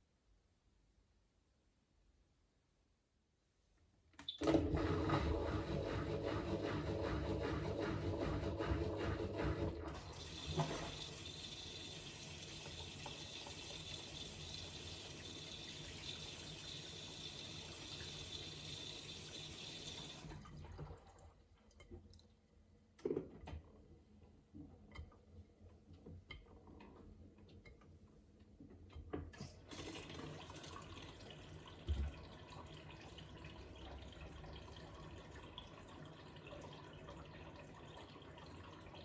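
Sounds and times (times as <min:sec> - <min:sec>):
water rushing into washing machine: 0:04.3 - 0:21.6, 0:29.4 - 0:39.0.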